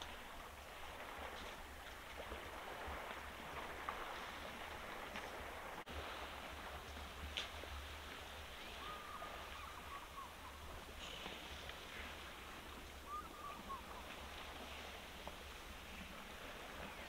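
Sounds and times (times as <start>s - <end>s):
bird whistled calls: 8.7s - 10.6s, 13.0s - 14.2s.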